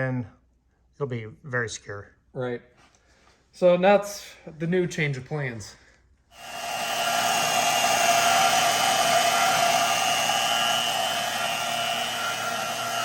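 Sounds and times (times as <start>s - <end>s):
angle grinder whining: 6.3s - 13.0s.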